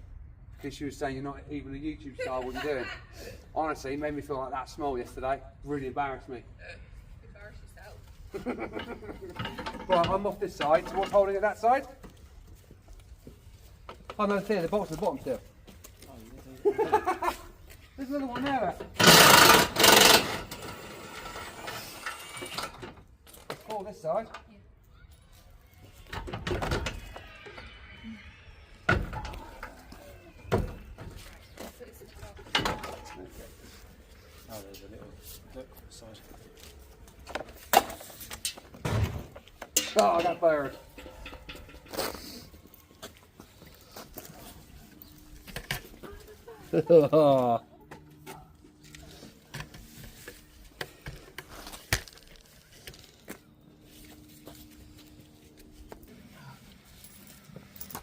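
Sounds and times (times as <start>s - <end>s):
parts clunking and scraping: 8.1s - 16.0s, 16.9s - 24.5s, 28.8s - 34.5s, 36.3s - 58.0s
faint squeaks: 24.5s - 37.1s.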